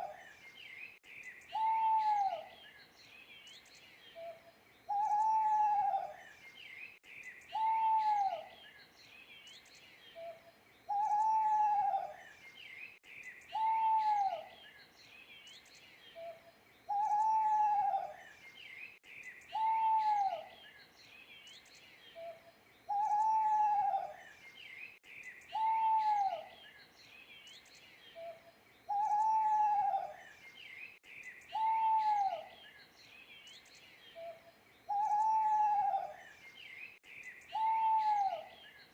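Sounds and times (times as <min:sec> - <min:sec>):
small birds chirping: 0:00.0 - 0:38.9
owl hooting: 0:01.5 - 0:02.5, 0:04.2 - 0:06.2, 0:07.5 - 0:08.5, 0:10.2 - 0:12.2, 0:13.5 - 0:14.5, 0:16.2 - 0:18.2, 0:19.5 - 0:20.5, 0:22.2 - 0:24.2, 0:25.5 - 0:26.5, 0:28.2 - 0:30.2, 0:31.5 - 0:32.6, 0:34.2 - 0:36.2, 0:37.5 - 0:38.6.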